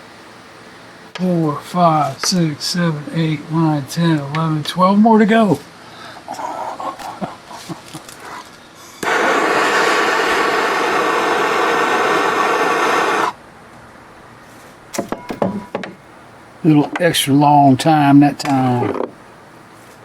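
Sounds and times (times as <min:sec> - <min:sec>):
impact wrench hammering: 0:15.0 - 0:16.0.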